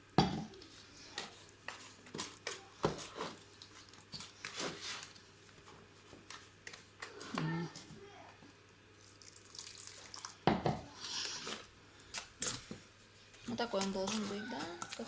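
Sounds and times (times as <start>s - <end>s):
mortar mixing scrapes and knocks: 1.1s - 3.5s.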